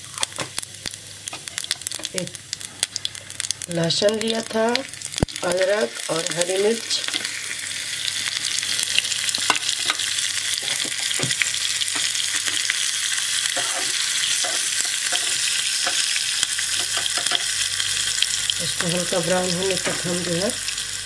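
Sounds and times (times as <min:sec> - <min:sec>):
spices sizzling in hot oil: 0:00.0 - 0:21.0
spoon scraping a pan: 0:09.3 - 0:17.6.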